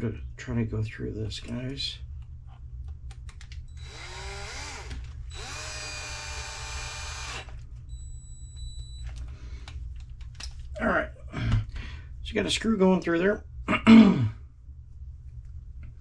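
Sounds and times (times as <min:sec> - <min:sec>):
power drill driving a screw: 0:03.8 - 0:07.6.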